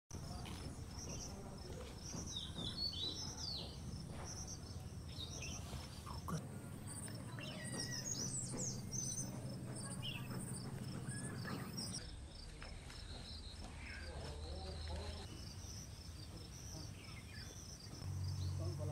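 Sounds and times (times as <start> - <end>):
birds calling: 0.2 - 18.9
insects chirping: 0.3 - 18.9
low background rumble: 18.0 - 18.9.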